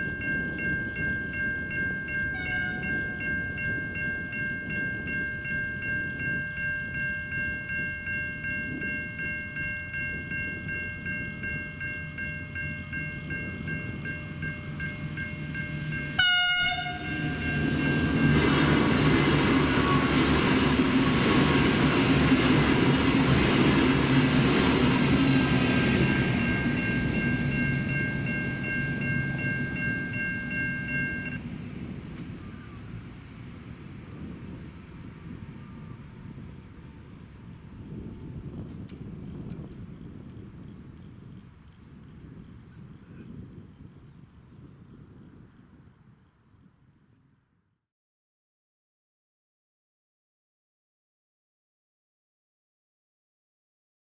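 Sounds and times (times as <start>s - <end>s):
level crossing bells ringing: 0.0s - 18.6s, 25.6s - 31.4s
diesel train passing: 0.0s - 42.9s
train horn blast: 2.3s - 3.1s, 14.3s - 18.0s.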